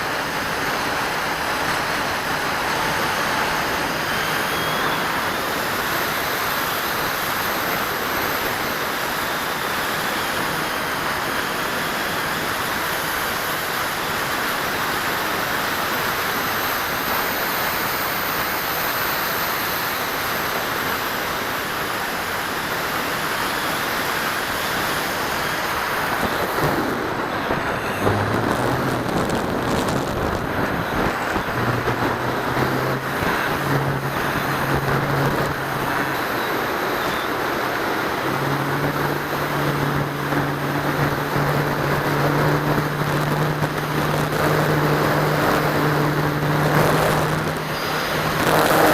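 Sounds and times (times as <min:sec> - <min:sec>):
electric motor whine: 0:00.0 - 0:48.9
airflow buffeting microphone: 0:19.5 - 0:48.9
low hum shifting pitch: 0:25.1 - 0:48.9.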